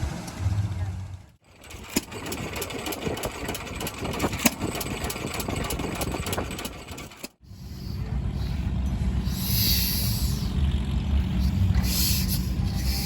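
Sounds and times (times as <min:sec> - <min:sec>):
engine clattering with clicks: 0:00.0 - 0:07.4
low engine rumble: 0:00.0 - 0:13.0.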